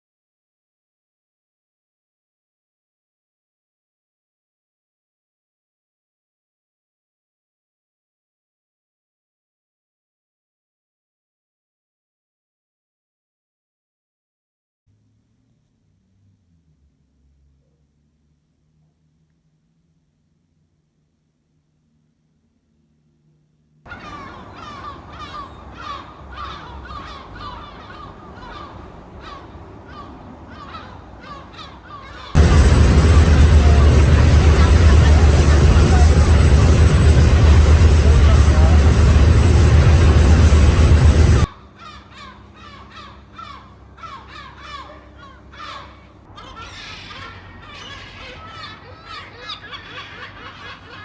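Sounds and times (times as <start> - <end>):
low background rush: 15.3 - 46.6
seagulls calling: 23.9 - 51.0
loud rushing noise: 32.4 - 41.5.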